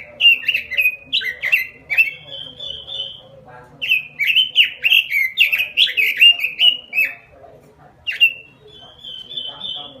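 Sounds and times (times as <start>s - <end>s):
bird singing: 0.0s - 10.0s.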